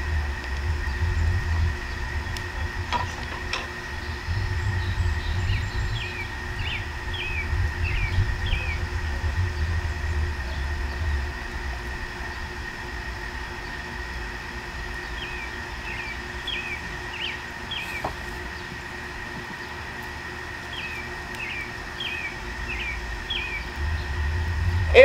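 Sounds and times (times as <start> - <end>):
low rumble: 0.0 - 12.9, 22.6 - 25.0
faint steady hum: 0.0 - 25.0
songbird chirping: 1.8 - 8.9, 14.9 - 19.0, 20.6 - 24.3.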